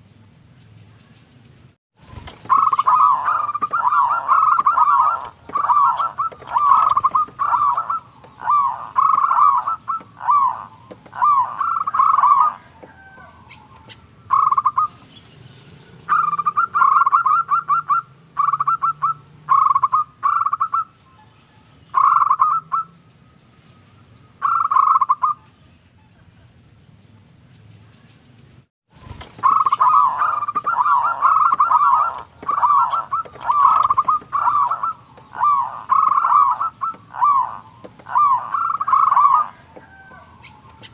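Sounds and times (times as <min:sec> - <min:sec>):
dove cooing: 0:02.2 - 0:15.0, 0:16.1 - 0:20.9, 0:24.4 - 0:25.4, 0:29.1 - 0:40.9.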